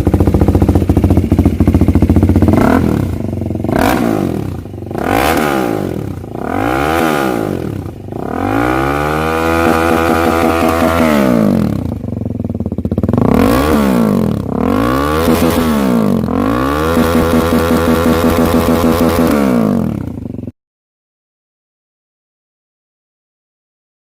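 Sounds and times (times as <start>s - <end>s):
motorcycle engine revving: 0.0s - 20.5s.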